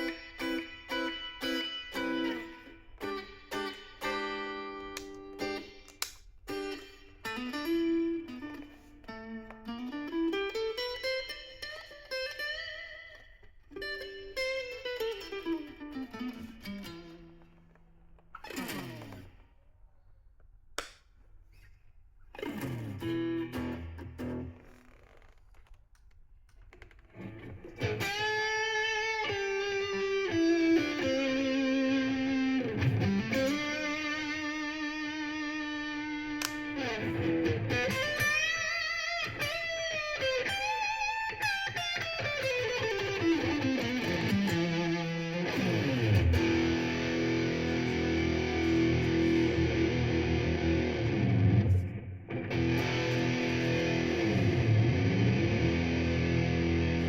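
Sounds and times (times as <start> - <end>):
distorted electric guitar: 0.0 - 19.5, 22.4 - 25.7, 26.8 - 57.0.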